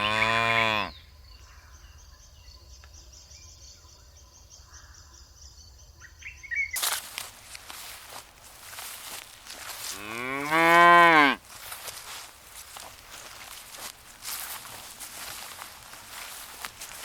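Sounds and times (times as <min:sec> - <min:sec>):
rustling noise: 0:06.8 - 0:17.0.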